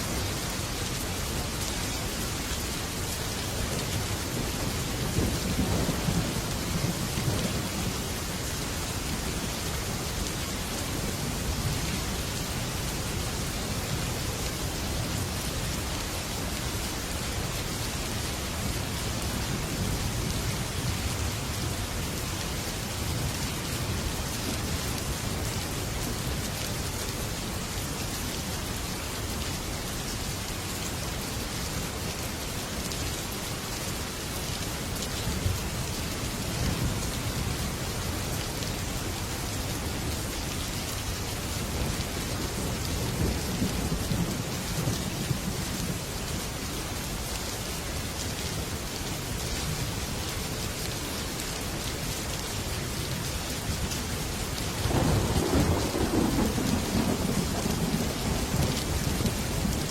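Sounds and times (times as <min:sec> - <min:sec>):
heavy rain on metal roof: 0:00.0 - 0:59.9
thunder rumbling: 0:54.8 - 0:59.9.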